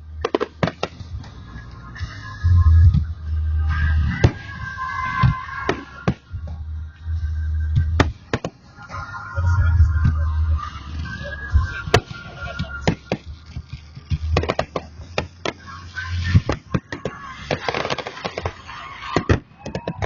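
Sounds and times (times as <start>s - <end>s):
crowd voices: 0.0s - 20.0s
fireworks bangs and crackles: 0.2s - 1.2s, 4.0s - 6.6s, 7.8s - 8.9s, 11.6s - 20.0s
low fireworks booms: 7.6s - 8.6s, 11.9s - 20.0s.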